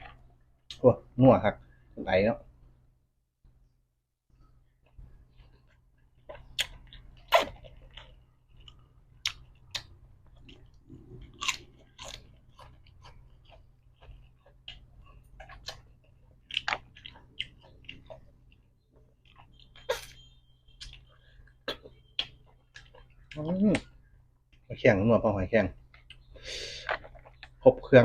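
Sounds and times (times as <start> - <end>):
person chewing crunchy food: 4.8 - 23.9, 26.0 - 27.6.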